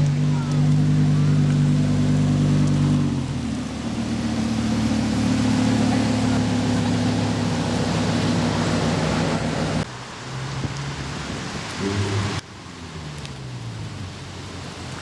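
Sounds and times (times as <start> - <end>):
car engine running: 0.0 - 9.8.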